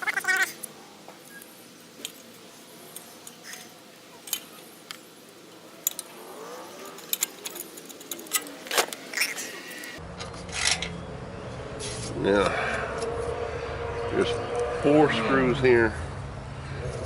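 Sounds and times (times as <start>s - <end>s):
metallic clicks of hand tools: 5.8s - 6.1s.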